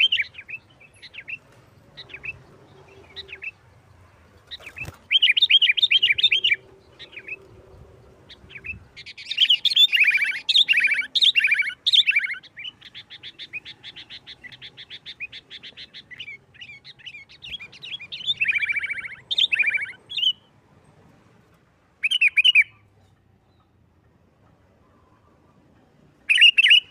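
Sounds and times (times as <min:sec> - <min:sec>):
bird singing chattering phrases: 0:00.0 - 0:20.5, 0:22.0 - 0:23.8, 0:26.2 - 0:26.9
fast bird trill: 0:04.5 - 0:07.4, 0:08.3 - 0:20.5, 0:22.0 - 0:22.8, 0:26.3 - 0:26.9.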